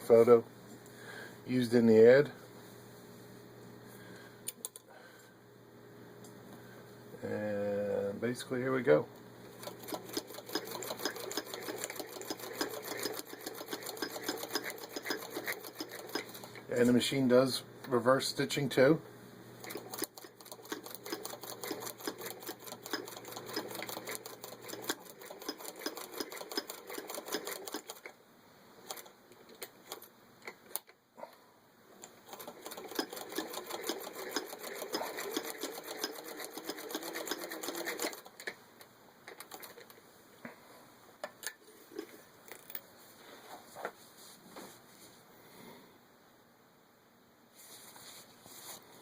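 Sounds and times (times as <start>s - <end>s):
sewing machine clicking rapidly: 9.6s - 16.5s, 19.6s - 28.1s, 32.2s - 38.5s.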